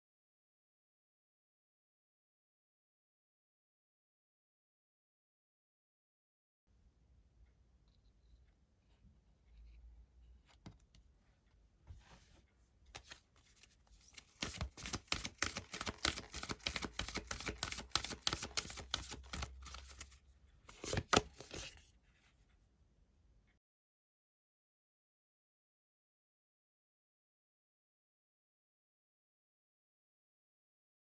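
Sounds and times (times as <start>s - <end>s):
cards being shuffled: 12.9s - 21.8s.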